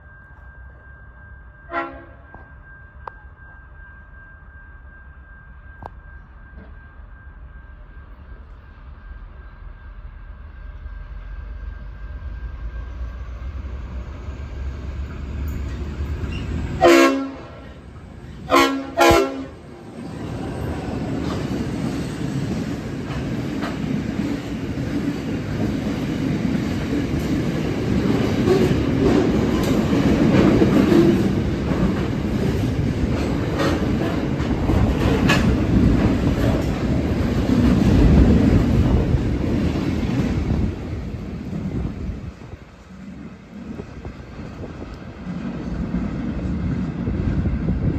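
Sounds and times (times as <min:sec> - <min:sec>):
train horn: 0:01.5 - 0:02.5, 0:16.7 - 0:22.4
locomotive engine rumble: 0:11.0 - 0:47.9
wheels clacking over rail joints: 0:20.0 - 0:41.2.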